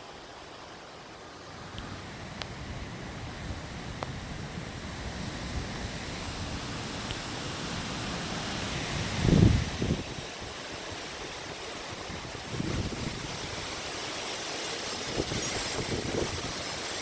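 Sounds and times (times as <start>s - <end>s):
steady wind: 0.0s - 17.0s
wind gust buffeting microphone: 8.6s - 14.0s, 15.0s - 17.0s.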